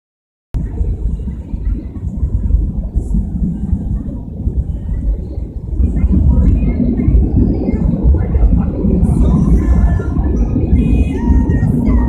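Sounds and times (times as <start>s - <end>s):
jet engines at takeoff: 0.6s - 12.0s.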